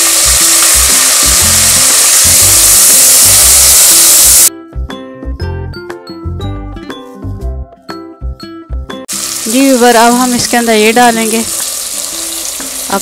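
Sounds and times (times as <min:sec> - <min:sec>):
tomatoes sizzling in oil: 0:00.0 - 0:04.5, 0:09.1 - 0:13.0
background music plucked melody: 0:04.5 - 0:13.0.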